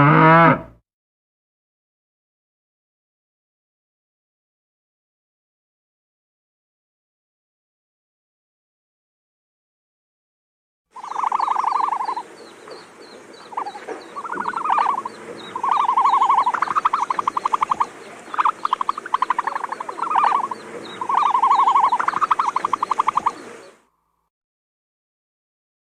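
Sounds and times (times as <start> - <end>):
animal pulsed trills: 11.0 - 23.8.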